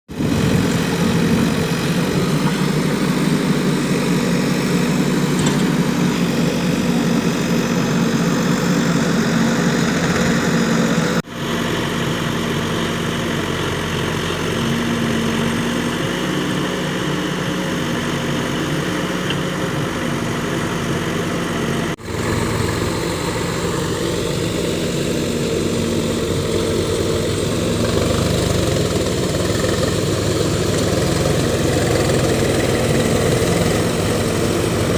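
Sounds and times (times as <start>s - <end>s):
heavy diesel engine running: 0.1s - 34.9s.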